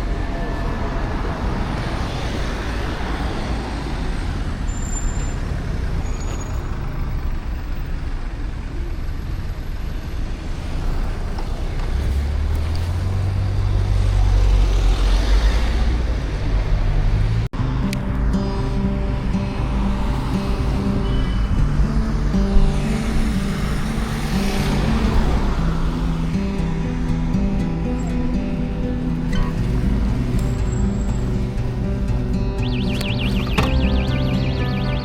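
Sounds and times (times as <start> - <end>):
road vehicle rushing noise: 0.0 - 27.1, 27.8 - 35.0.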